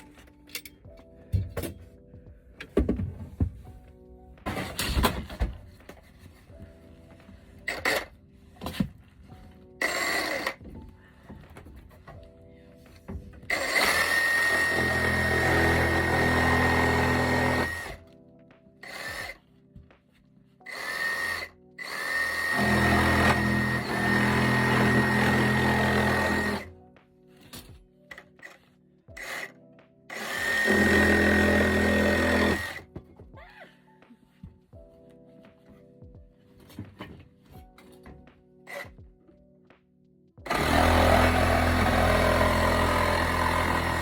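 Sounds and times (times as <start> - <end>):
power drill motor whining: 9.8 - 10.6, 13.5 - 18.0, 18.8 - 19.4, 20.7 - 26.7, 30.1 - 32.8, 40.5 - 44.0.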